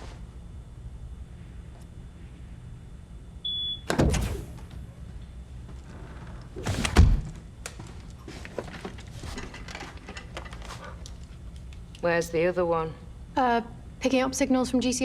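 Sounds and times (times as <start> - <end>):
steady low hum: 0.0 - 15.0
heavy door thunk: 3.9 - 4.8, 6.6 - 7.4.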